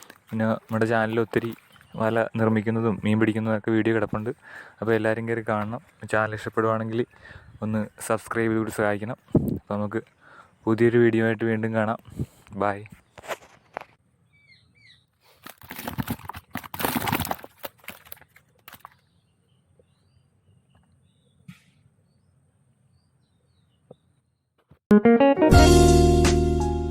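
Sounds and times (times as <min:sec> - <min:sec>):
bird chirps: 0:14.2 - 0:15.2, 0:18.9 - 0:24.5
guitar music: 0:24.9 - 0:26.9.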